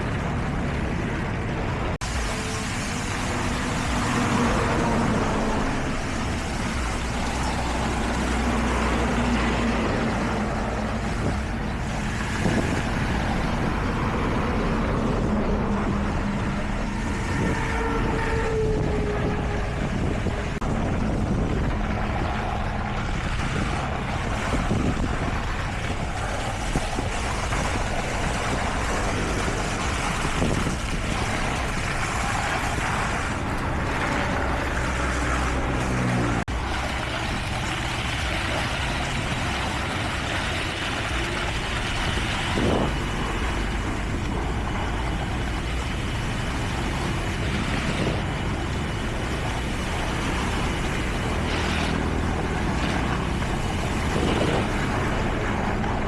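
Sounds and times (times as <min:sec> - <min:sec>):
heavy machinery engines running: 0:00.0 - 0:56.0.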